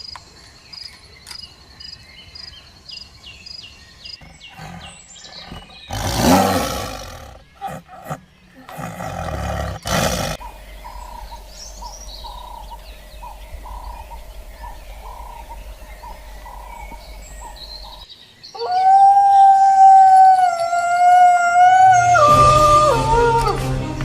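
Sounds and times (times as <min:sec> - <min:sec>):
faint bird chirps: 0:00.0 - 0:22.2
young dog howling: 0:18.6 - 0:23.7.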